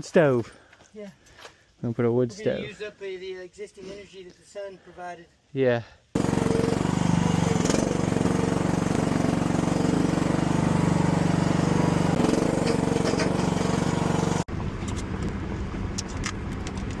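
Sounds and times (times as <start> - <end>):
engine running steadily: 6.2 - 17.0.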